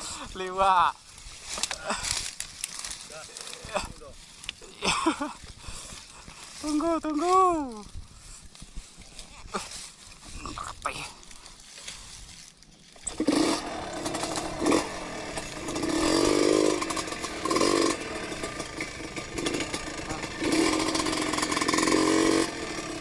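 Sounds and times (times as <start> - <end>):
motorcycle engine revving: 13.0 - 23.0.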